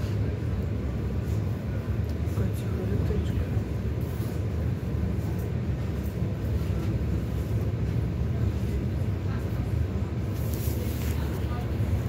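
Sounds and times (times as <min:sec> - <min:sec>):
electric train low rumble: 0:00.0 - 0:12.0.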